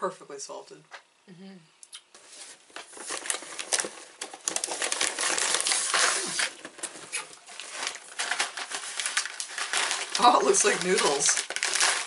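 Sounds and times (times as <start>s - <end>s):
plastic wrapper crinkling: 2.4s - 12.0s.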